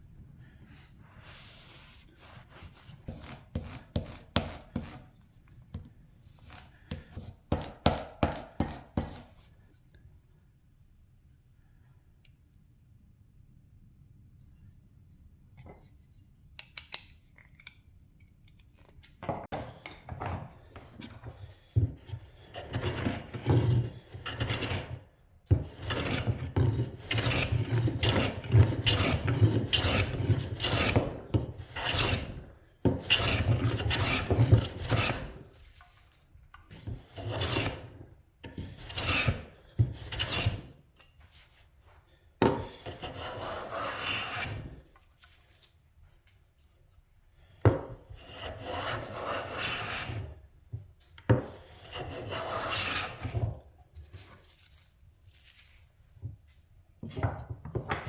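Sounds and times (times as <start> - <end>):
hand plane scraping wood: 1.2 - 5.2, 6.4 - 9.4, 19.6 - 36.0, 36.7 - 40.8, 42.5 - 44.9, 48.0 - 50.4, 51.4 - 53.6.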